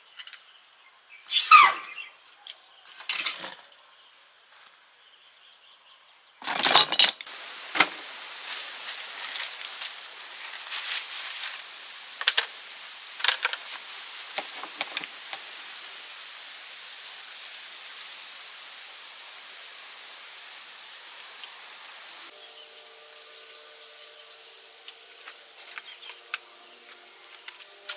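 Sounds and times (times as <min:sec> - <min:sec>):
steady hiss: 0:06.8 - 0:27.9.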